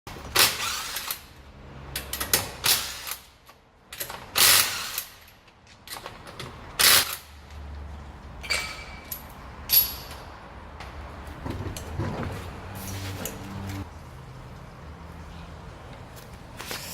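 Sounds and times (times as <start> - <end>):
metal tools clanking: 8.4 - 10.3.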